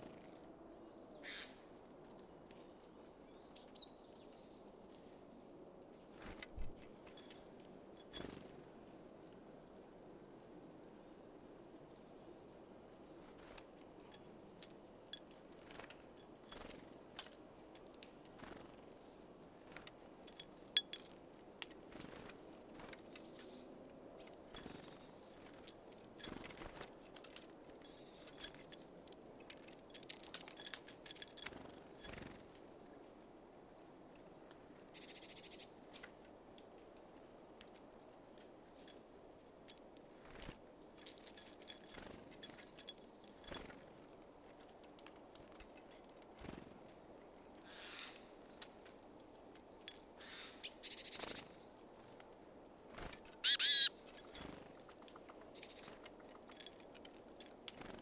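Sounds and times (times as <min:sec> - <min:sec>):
birds pecking at seeds: 0:05.9 - 0:08.5, 0:13.1 - 0:18.9, 0:19.5 - 0:23.6, 0:24.2 - 0:32.6, 0:37.6 - 0:47.1, 0:51.0 - 0:58.0
high bird chirps: 0:53.4 - 0:53.9.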